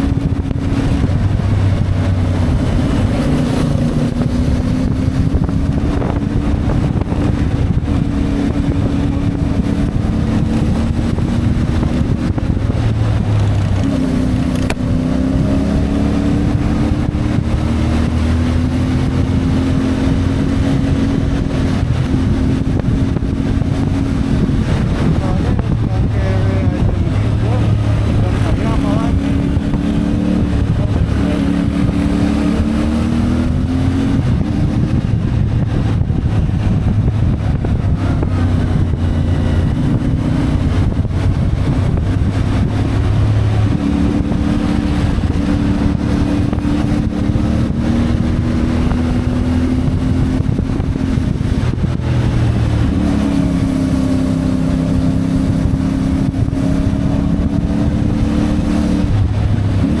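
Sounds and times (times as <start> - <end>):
motorcycle engine revving: 0.0 - 60.0
wind and road noise: 0.0 - 60.0.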